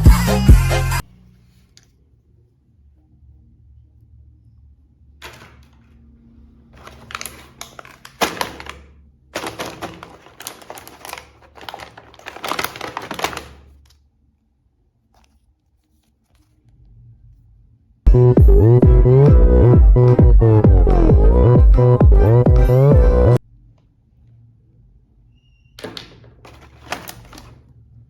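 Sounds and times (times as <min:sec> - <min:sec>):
packaging rustling: 0:06.8 - 0:14.0, 0:26.4 - 0:27.7
plastic toys clicking and knocking: 0:06.8 - 0:14.0, 0:25.8 - 0:27.6.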